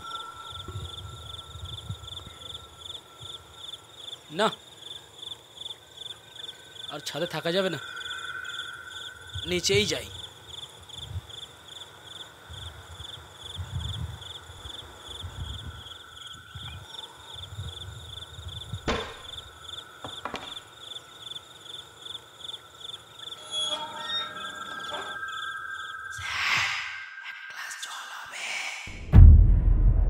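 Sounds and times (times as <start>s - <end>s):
crickets chirping: 0.0s - 28.9s
sharp knocks: 18.8s - 19.4s, 20.0s - 20.6s
soft low thuds: 29.0s - 30.0s.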